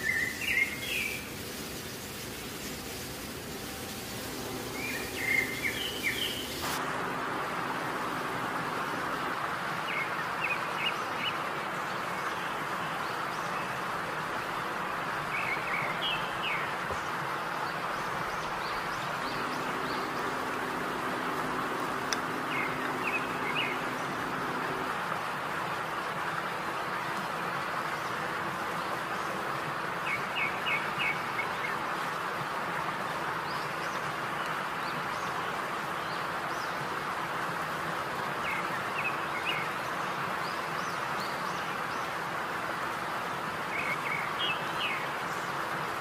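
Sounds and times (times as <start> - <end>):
steady hiss: 0.0 - 10.6, 17.8 - 26.1.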